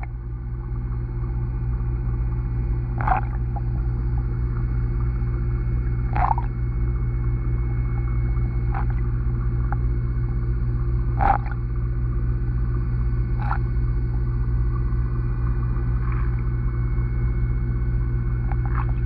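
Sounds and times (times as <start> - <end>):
underwater hum and rumble: 0.0 - 19.0.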